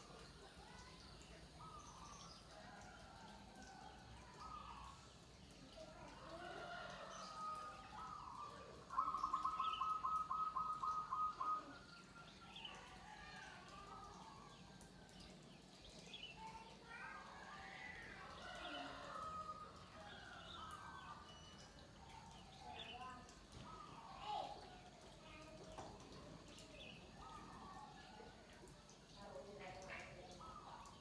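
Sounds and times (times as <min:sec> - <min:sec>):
doves cooing: 0:06.5 - 0:11.9.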